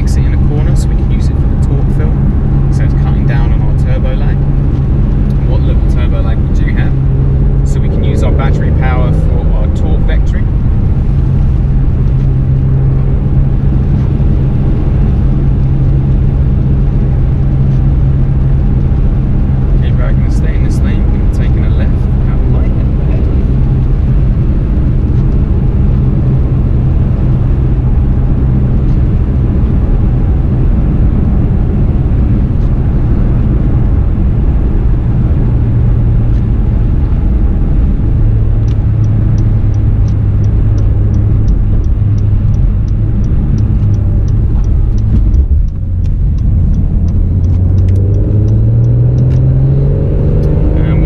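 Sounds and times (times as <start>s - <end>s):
car engine drone: 0.0s - 51.0s
road noise: 0.0s - 51.0s
light regular ticking: 36.2s - 51.0s.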